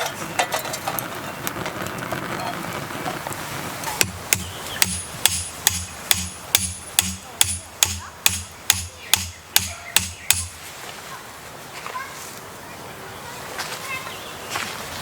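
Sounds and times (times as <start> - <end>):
hammer blows on metal: 4.0 - 10.7.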